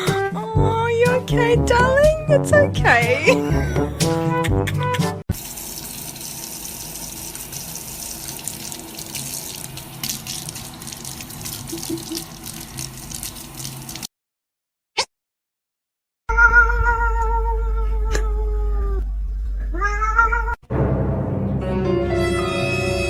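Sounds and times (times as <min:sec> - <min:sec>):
running splashing water: 0:05.3 - 0:14.1.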